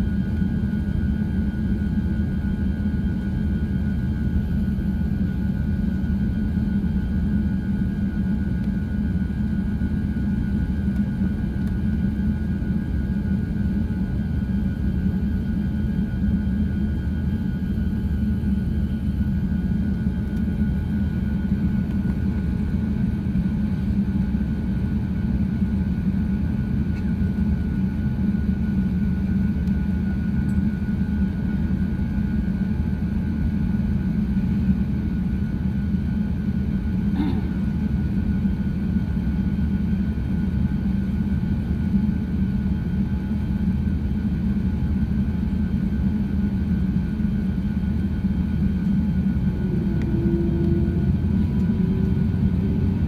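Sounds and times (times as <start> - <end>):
airplane cabin rumble: 0.0 - 53.0
faint steady whine: 0.0 - 53.0.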